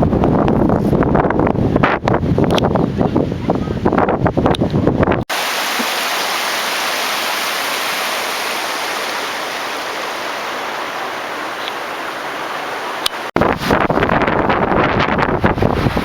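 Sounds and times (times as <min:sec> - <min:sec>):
creek water rushing: 0:05.3 - 0:13.4.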